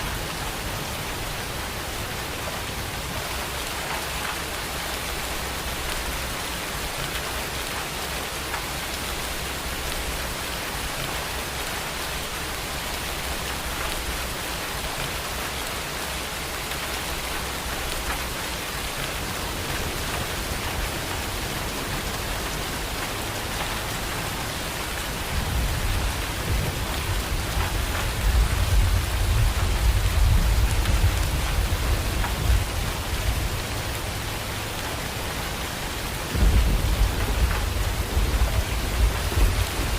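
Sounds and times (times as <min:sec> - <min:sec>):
rain pattering: 0:00.0 - 0:39.9
thunder rumbling: 0:17.5 - 0:39.9.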